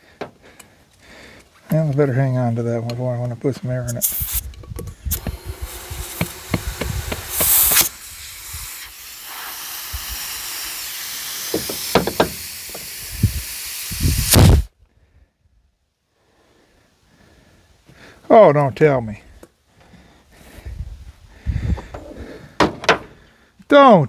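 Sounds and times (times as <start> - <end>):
knocks and clunks of handling: 0.1 - 0.7, 21.7 - 23.3
compressed air hissing: 3.8 - 14.7.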